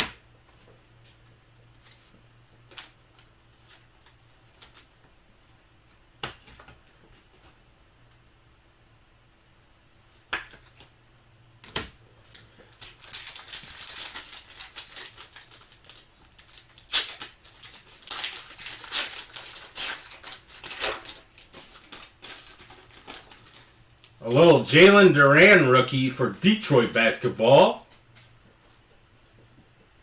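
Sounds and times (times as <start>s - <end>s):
wrapper crinkling: 12.6s - 24.7s.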